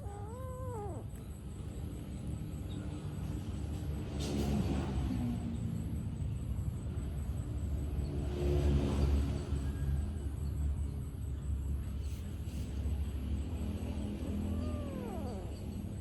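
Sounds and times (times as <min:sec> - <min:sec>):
cat meowing: 0:00.0 - 0:01.3, 0:14.0 - 0:16.0
engine rumbling: 0:00.0 - 0:16.0.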